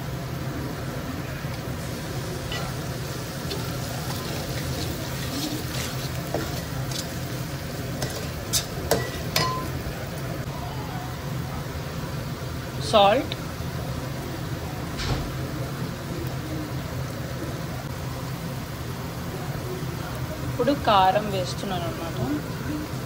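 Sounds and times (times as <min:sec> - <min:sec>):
onions sizzling in oil: 0:00.0 - 0:10.5, 0:11.2 - 0:23.0
spoon clinking and scraping pan: 0:02.4 - 0:09.8.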